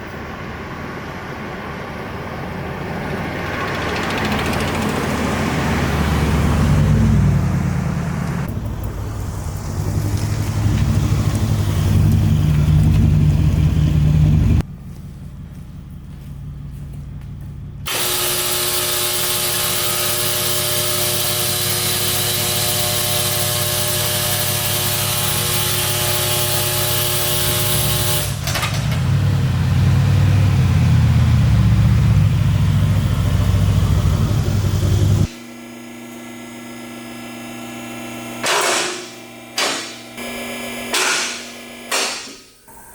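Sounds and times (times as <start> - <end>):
car engine rumbling: 0.0 - 17.9, 28.5 - 35.3.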